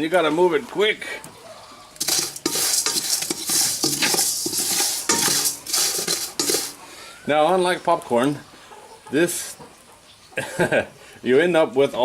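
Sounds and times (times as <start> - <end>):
rice rattling in metal pan: 2.0 - 6.8.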